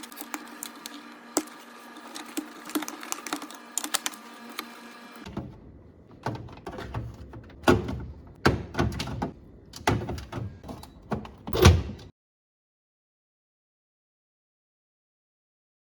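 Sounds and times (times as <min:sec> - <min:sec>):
household knocks and thuds: 0:06.2 - 0:12.1.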